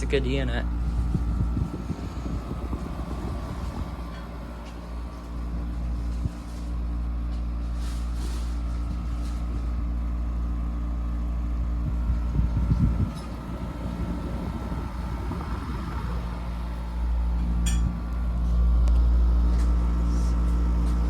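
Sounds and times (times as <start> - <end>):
window air conditioner running: 0.0 - 21.0.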